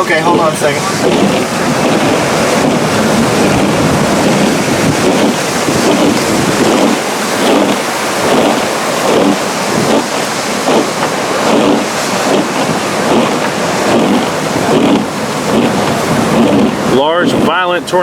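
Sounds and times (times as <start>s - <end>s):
strong wind on microphone: 0.0s - 18.0s.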